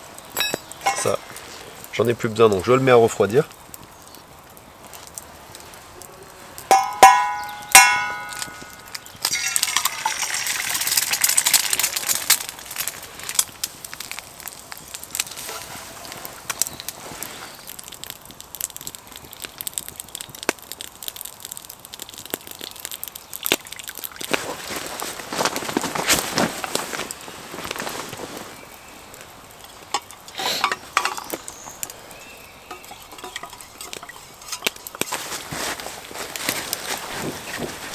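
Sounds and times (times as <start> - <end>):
hot pan sizzling: 0.0 - 25.6, 26.6 - 37.9
wood fire popping: 0.0 - 37.9
metal cookware clanking: 0.4 - 1.2, 6.7 - 10.5, 32.7 - 34.8.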